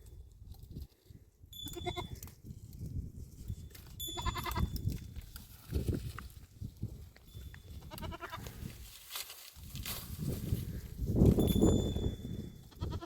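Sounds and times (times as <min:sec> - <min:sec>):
livestock bleating: 0:01.6 - 0:02.2, 0:04.1 - 0:04.7, 0:07.8 - 0:08.6, 0:12.7 - 0:13.0.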